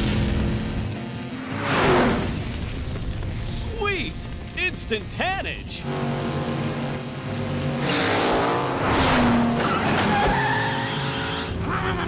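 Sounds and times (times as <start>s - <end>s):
cartoon race car engines: 5.8s - 12.0s.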